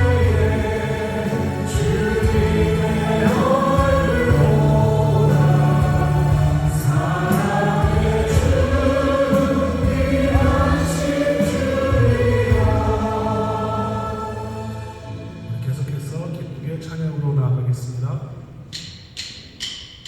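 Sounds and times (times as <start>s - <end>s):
several voices singing: 0.0s - 15.3s
worship band playing: 0.0s - 18.2s.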